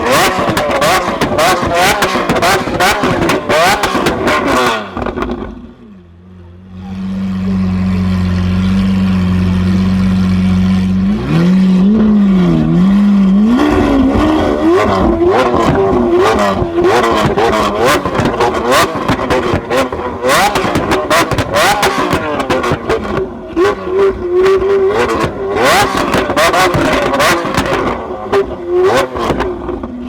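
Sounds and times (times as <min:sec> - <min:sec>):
car engine idling: 0:00.0 - 0:30.0
sports car engine revving: 0:00.0 - 0:30.0.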